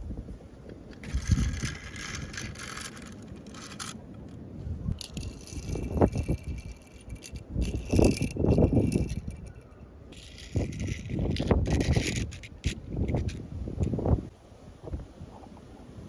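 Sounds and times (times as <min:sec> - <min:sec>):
toy cars rolling and rattling: 0:00.9 - 0:04.4, 0:05.0 - 0:13.4.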